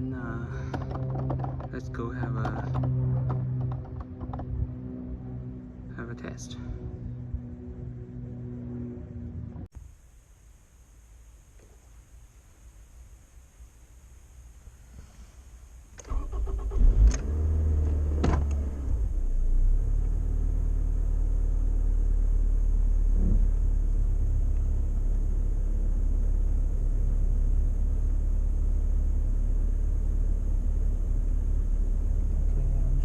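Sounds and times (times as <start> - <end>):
car engine low rumble: 0.0 - 10.1, 10.8 - 33.0
sharp knocks and clicks: 0.6 - 4.6
car starting up: 16.0 - 21.4.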